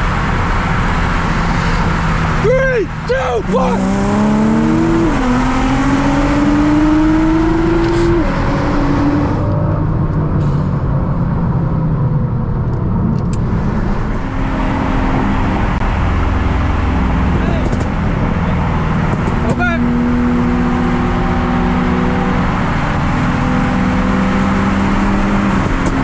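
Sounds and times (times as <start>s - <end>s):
car engine accelerating: 0.0s - 26.0s
road noise: 0.0s - 26.0s.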